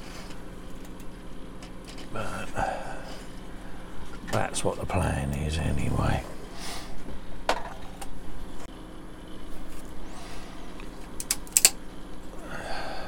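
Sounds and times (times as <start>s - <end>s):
plastic parts snapping apart: 11.2s - 11.8s.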